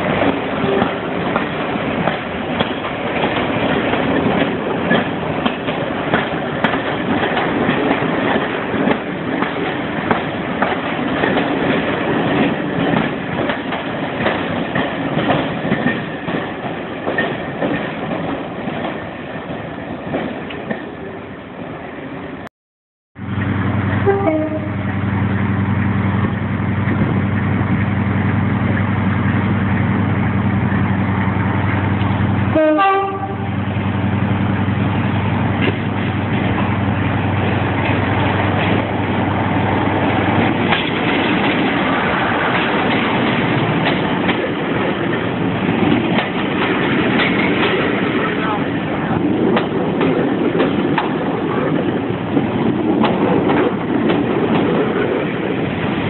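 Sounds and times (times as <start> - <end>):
diesel locomotive engine humming: 0.0 - 22.5, 23.2 - 56.0
railway coaches rolling past: 0.0 - 22.5, 23.2 - 56.0
train horn: 0.6 - 1.0, 24.0 - 24.8, 32.5 - 33.6.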